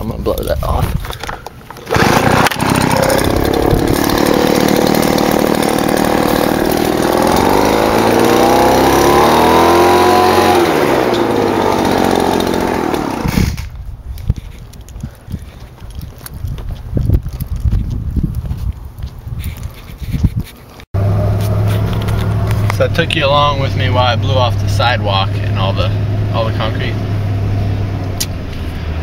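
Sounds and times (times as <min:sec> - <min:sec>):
leaf blower engine: 0:01.2 - 0:13.7, 0:21.0 - 0:26.8.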